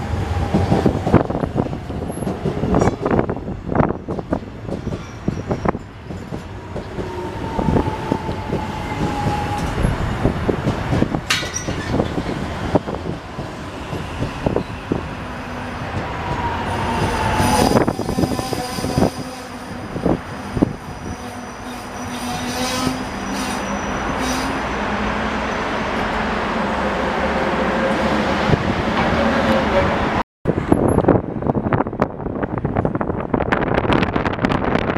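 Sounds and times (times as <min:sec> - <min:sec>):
train wheels clacking over rail joints: 0:10.6 - 0:12.5
high-pitched wheel squeals: 0:16.7 - 0:24.8.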